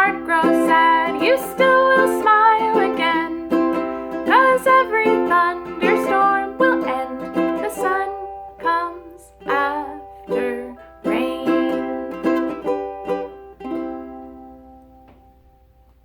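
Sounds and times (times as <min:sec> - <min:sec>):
woman singing: 0:00.0 - 0:12.2
ukulele strumming: 0:00.0 - 0:16.0.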